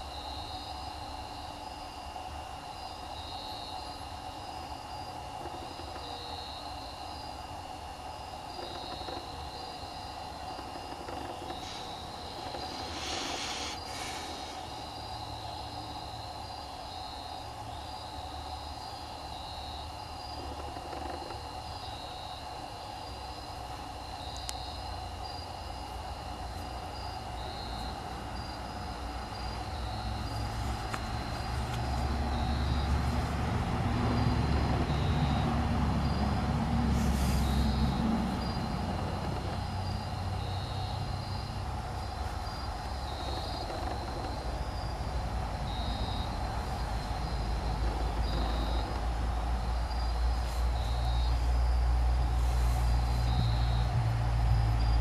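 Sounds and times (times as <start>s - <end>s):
insects chirping: 0.0s - 55.0s
distant vehicle engine rumble: 8.4s - 16.4s, 25.8s - 55.0s.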